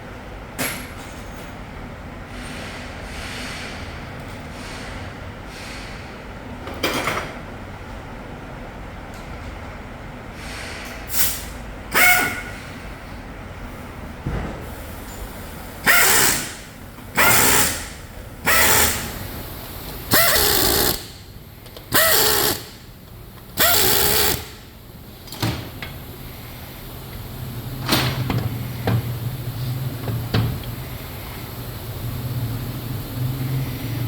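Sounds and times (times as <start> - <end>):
power tool bursts: 11.9 - 12.5, 15.8 - 19.2, 20.1 - 21.2, 21.9 - 22.8, 23.6 - 24.6.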